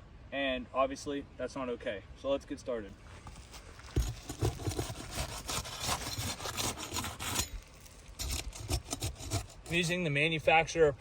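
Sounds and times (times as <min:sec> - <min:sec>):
metal bar scraping under shingle: 0:03.2 - 0:10.1.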